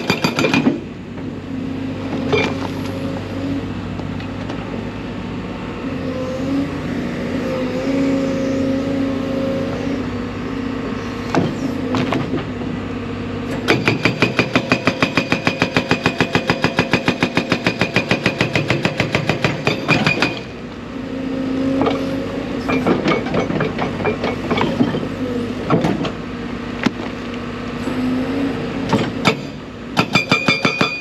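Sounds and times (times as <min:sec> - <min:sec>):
hydraulic breaker hammering rock: 0:00.0 - 0:00.9, 0:13.5 - 0:20.6, 0:21.8 - 0:26.2, 0:28.9 - 0:31.0
excavator diesel engine running: 0:00.0 - 0:31.0.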